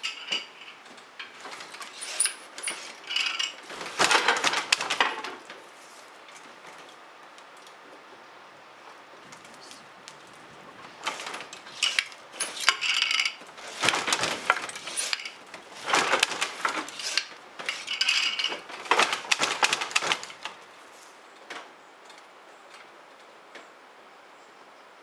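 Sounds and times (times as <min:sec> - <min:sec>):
dishes and utensils clattering: 0:10.7 - 0:20.6.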